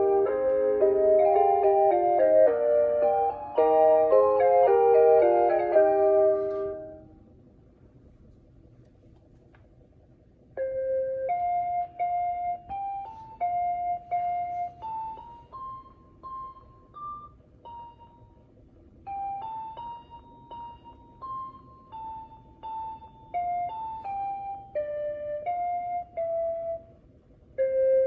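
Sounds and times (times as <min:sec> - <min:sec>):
electronic music box melody: 0:00.0 - 0:07.0, 0:10.6 - 0:27.0
low steady hum: 0:00.0 - 0:28.0.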